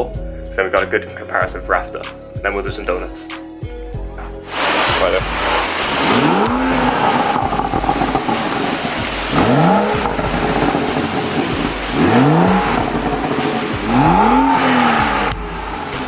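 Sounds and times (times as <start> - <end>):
car engine revving: 4.2 - 16.0.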